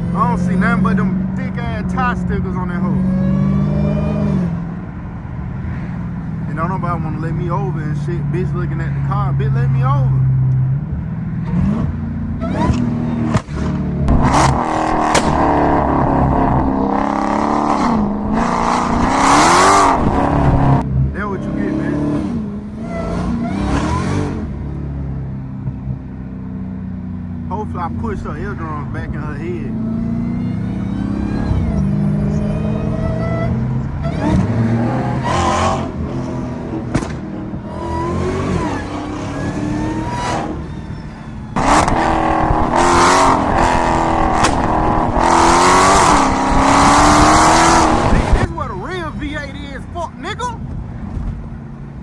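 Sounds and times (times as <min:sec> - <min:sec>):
car engine accelerating hard: 0:00.0 - 0:49.4
sharp exhaust cracks: 0:12.5 - 0:20.8, 0:34.0 - 0:49.0.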